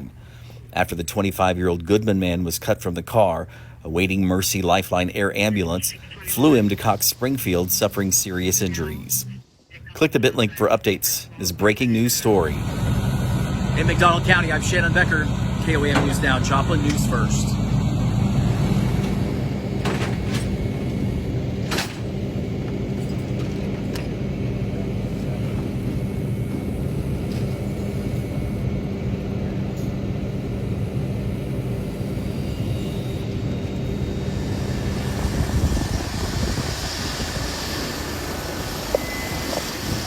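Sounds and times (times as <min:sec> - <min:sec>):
heavy engine humming: 0:00.0 - 0:40.0
rushing hiss with high whine: 0:06.0 - 0:10.8, 0:30.5 - 0:40.0.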